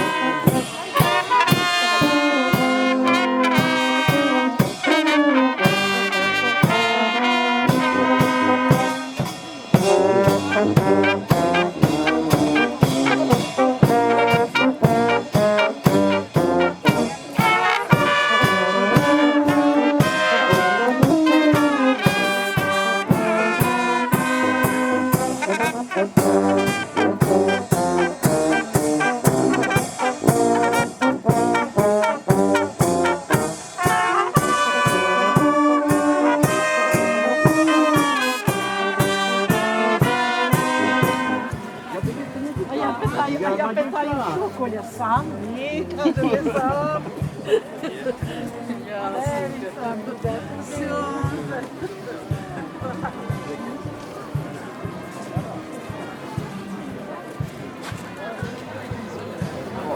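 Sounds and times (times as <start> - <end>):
brass instruments playing tune: 0.0 - 45.3
steady drum beat: 0.0 - 55.0.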